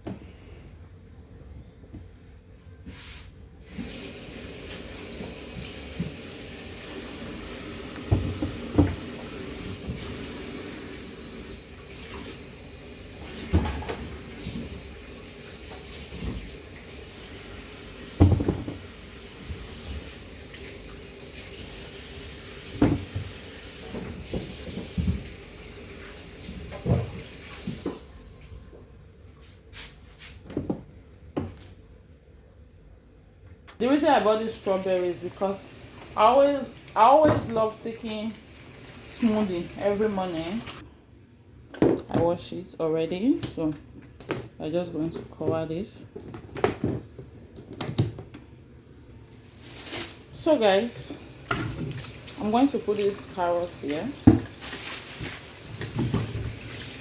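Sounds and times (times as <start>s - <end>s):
tap running into a sink: 7.8s - 10.4s, 18.1s - 20.7s, 22.7s - 25.4s, 26.0s - 28.1s, 51.4s - 52.4s, 53.0s - 54.6s, 55.2s - 57.0s
items knocking in a sink: 8.0s - 9.2s, 13.4s - 14.6s, 18.2s - 18.9s, 22.7s - 25.4s, 26.6s - 28.0s, 53.8s - 57.0s.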